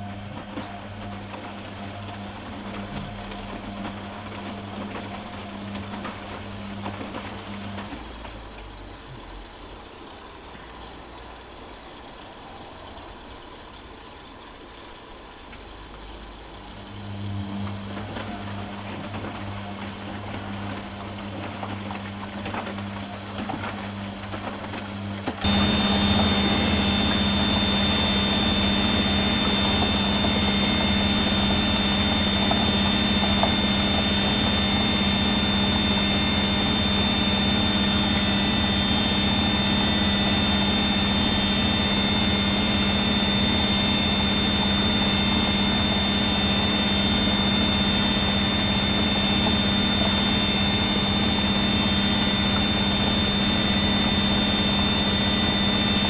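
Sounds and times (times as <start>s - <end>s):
washing machine hum: 0.0s - 56.0s
thin high whine: 25.0s - 56.0s.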